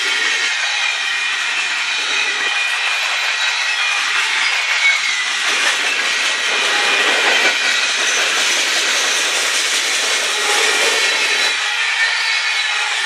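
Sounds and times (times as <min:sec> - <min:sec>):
freight train rolling past: 0:00.0 - 0:12.0.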